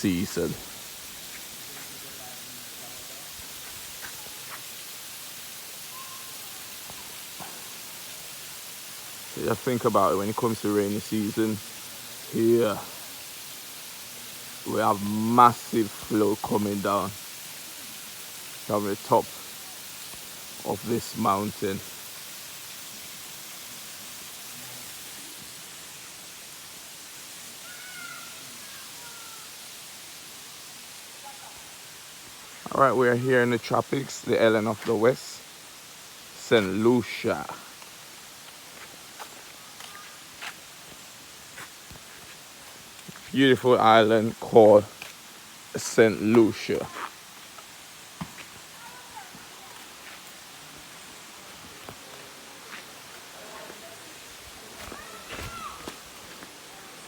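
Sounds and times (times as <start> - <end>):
waterfall rushing: 0.0 - 57.0
faint high chirps: 5.8 - 7.7.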